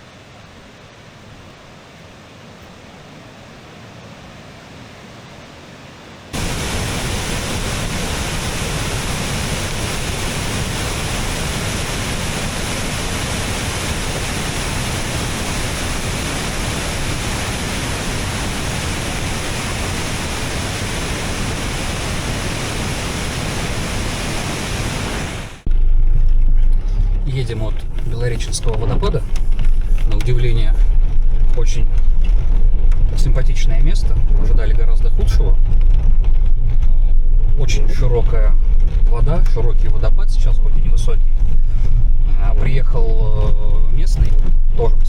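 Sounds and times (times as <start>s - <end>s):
water hiss: 6.4s - 25.7s
waterfall rushing: 6.4s - 25.7s.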